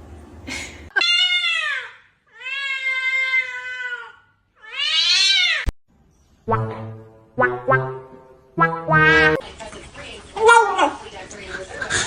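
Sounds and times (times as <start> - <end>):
cat meowing: 1.0 - 5.7.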